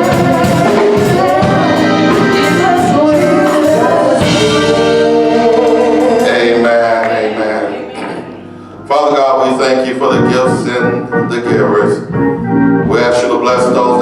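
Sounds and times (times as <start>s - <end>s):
gospel choir singing: 0.0s - 10.8s
instrumental accompaniment: 0.0s - 14.0s.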